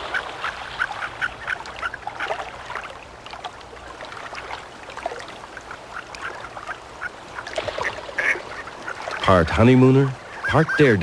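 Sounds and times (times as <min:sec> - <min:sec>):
mountain stream running: 0:00.0 - 0:11.0
ducks making squeaky calls: 0:07.8 - 0:09.3, 0:10.0 - 0:11.0.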